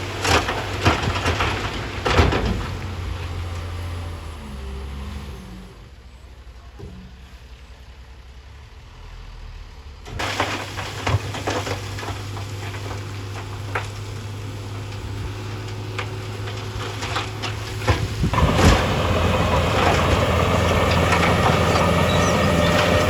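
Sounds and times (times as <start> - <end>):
rock and gravel clattering: 0.0 - 3.6, 10.2 - 23.0
heavy machine engine running: 10.0 - 23.0.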